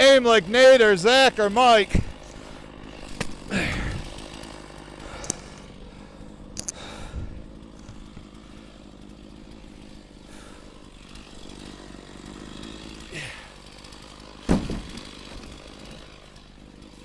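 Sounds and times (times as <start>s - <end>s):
chainsaw idling: 0.0s - 17.0s.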